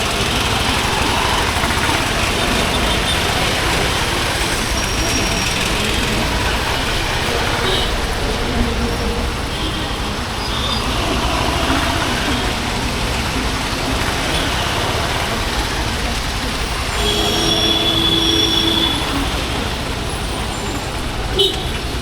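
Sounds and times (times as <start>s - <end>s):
motorcycle engine running: 0.0s - 8.2s
road and wind noise: 0.0s - 22.0s
high-pitched squeal-like tone: 16.9s - 19.9s.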